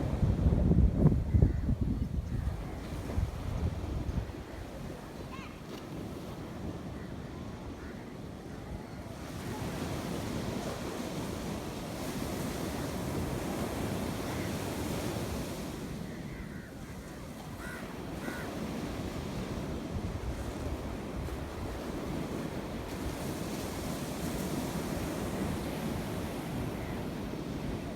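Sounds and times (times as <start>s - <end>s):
wind rumbling on microphone: 0.0s - 5.1s
sea waves washing onto shore: 9.0s - 16.4s, 17.1s - 27.9s.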